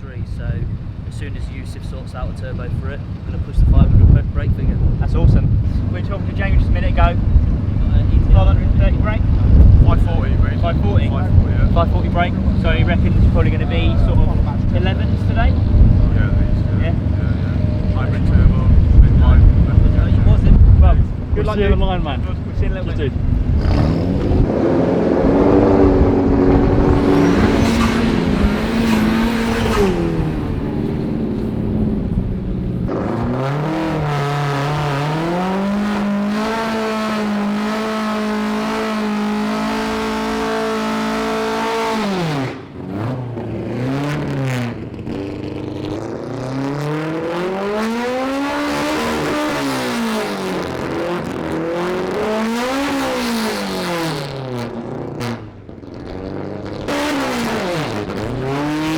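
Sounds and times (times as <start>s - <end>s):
car engine revving: 0.0s - 58.9s.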